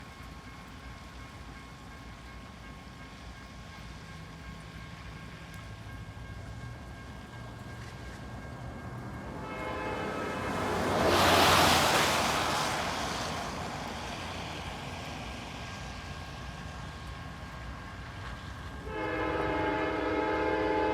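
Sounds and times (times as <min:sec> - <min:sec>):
train passing: 0:00.0 - 0:20.9
train horn: 0:09.2 - 0:12.2, 0:18.8 - 0:20.9.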